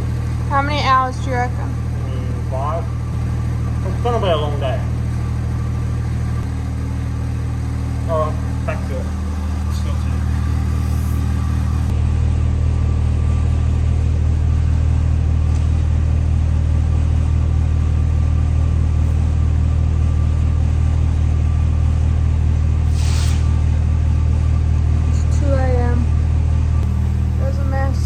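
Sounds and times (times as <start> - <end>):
low engine drone: 0.0 - 28.0
brief hiss: 22.9 - 23.6.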